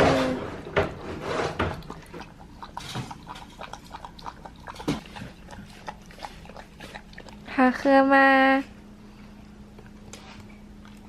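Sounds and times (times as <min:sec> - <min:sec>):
dog lapping milk: 0:00.6 - 0:07.9.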